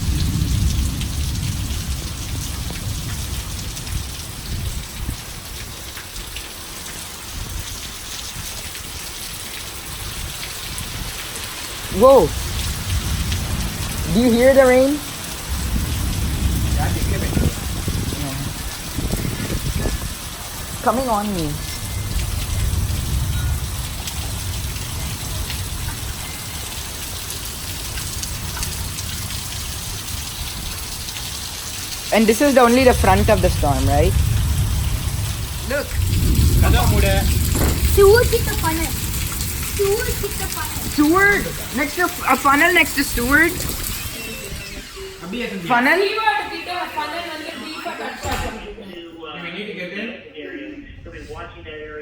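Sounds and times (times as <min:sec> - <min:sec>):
wind gusting on microphone: 0:00.0 - 0:06.3, 0:09.8 - 0:45.0
heavy rain falling: 0:00.0 - 0:48.8.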